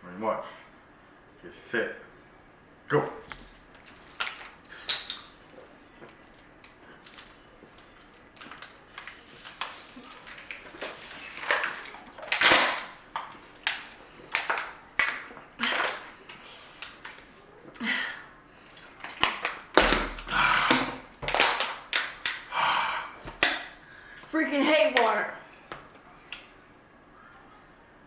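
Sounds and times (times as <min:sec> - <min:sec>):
people gulping water: 0:18.7 - 0:23.6.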